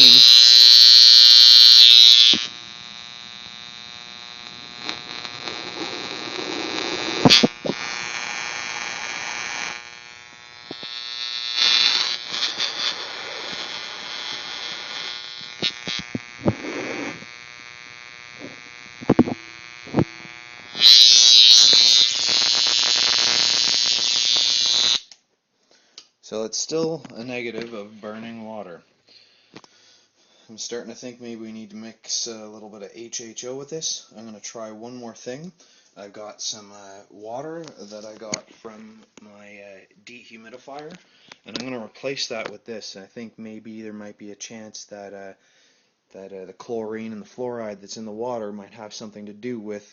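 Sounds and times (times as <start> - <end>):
high-voltage spark buzzing: 0.0 - 25.2
crackling with sharp clicks: 0.0 - 26.2.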